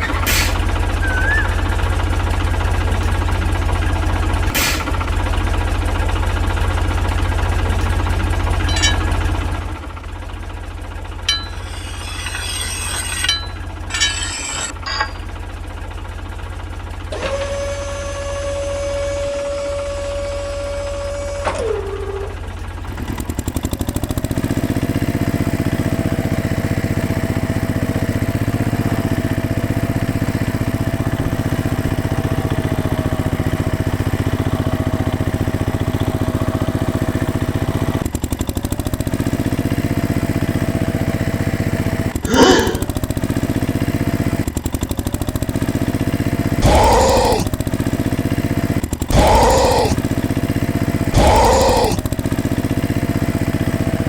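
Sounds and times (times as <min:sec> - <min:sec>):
small motor running: 0:00.0 - 0:04.9, 0:10.9 - 0:15.3, 0:17.1 - 0:26.1, 0:44.7 - 0:54.0
held tone dropping in pitch: 0:01.0 - 0:02.0.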